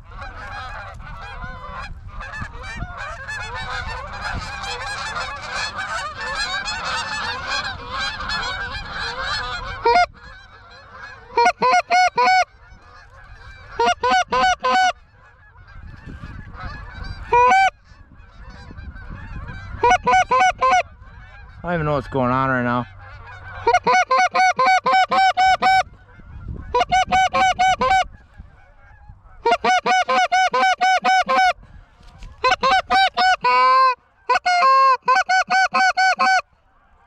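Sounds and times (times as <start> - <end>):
close geese honks and clucks: 0.0 - 37.0
flock of geese honking: 0.0 - 37.0.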